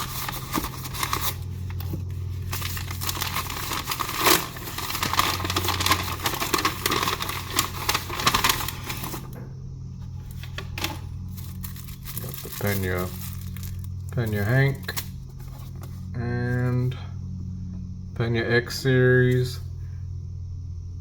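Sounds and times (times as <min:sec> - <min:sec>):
packaging ripping and crinkling: 0:00.0 - 0:09.4, 0:10.3 - 0:15.2
steady low hum: 0:00.0 - 0:21.0.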